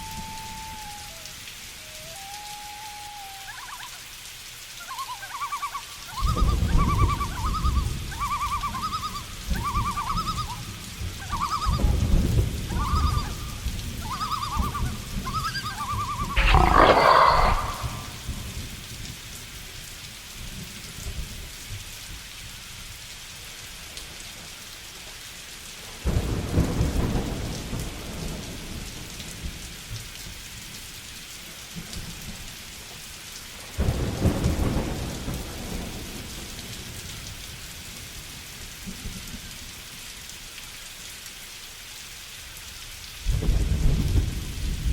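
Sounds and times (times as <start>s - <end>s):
steady rain: 0.0s - 44.9s
short animal call: 16.4s - 18.3s
thunder: 16.4s - 18.6s, 26.0s - 29.0s, 33.8s - 36.5s, 43.3s - 44.9s.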